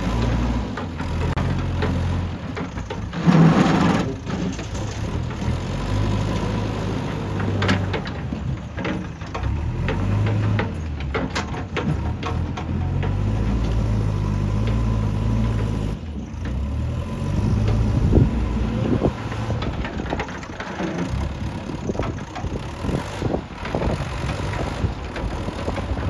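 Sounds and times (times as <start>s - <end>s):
diesel engine running: 0.0s - 26.0s
sharp knocks and clanks: 7.1s - 15.8s.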